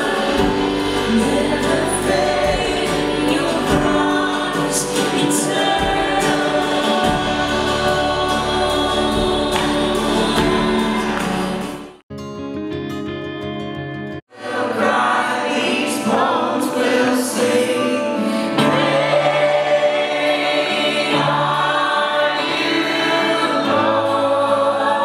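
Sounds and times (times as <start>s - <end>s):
band playing worship music: 0.0s - 12.0s, 14.3s - 25.0s
many voices singing together: 0.0s - 12.0s, 14.3s - 25.0s.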